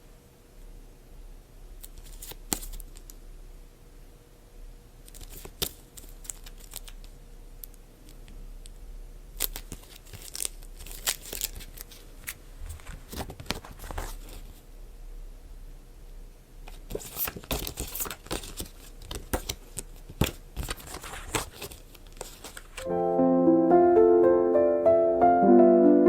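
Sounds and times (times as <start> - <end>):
packaging tearing and crinkling: 5.1 - 7.0, 9.4 - 14.5, 16.9 - 22.8.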